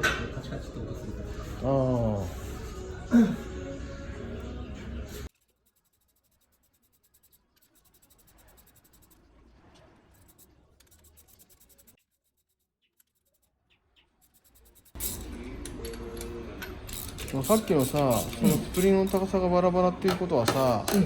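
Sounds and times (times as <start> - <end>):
faint scratching and rubbing: 5.0 - 15.5.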